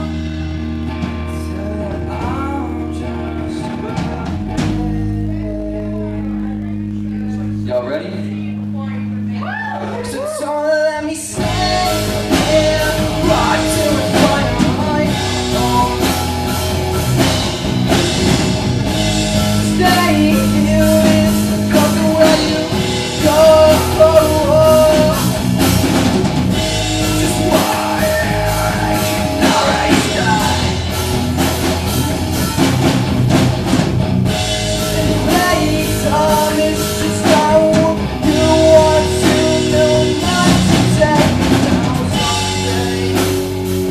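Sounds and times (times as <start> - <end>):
live rock band playing: 0.0 - 43.9
person singing: 1.1 - 7.6, 9.6 - 16.6, 19.5 - 25.7, 26.9 - 31.0, 34.8 - 43.9.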